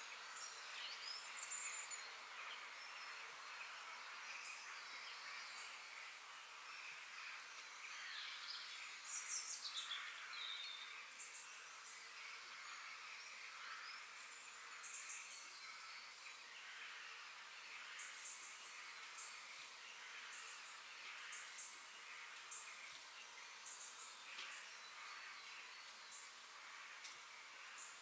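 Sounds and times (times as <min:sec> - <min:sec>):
distant birds and insects: 0:00.0 - 0:28.0
small birds chirping: 0:00.0 - 0:28.0.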